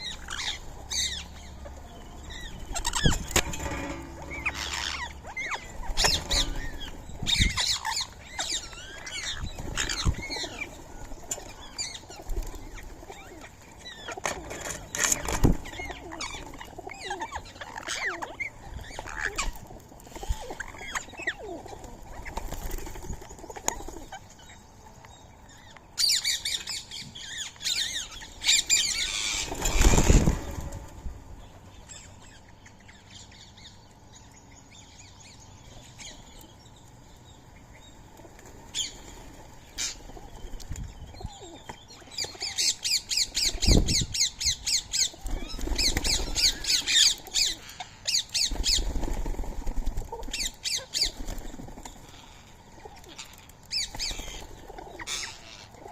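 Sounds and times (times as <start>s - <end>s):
parakeets squawking: 0.0s - 10.8s, 13.0s - 19.6s.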